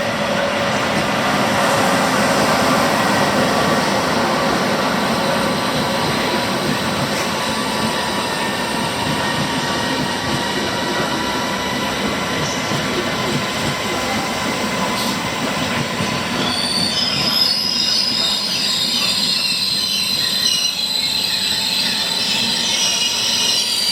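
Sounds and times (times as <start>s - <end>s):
train wheels on rails: 0.0s - 23.9s.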